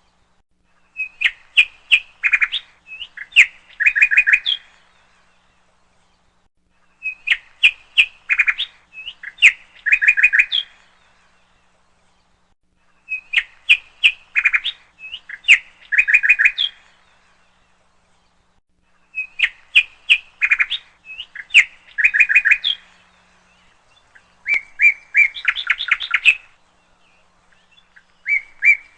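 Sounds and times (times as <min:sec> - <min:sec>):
songbird chirping: 0:00.0 - 0:28.9.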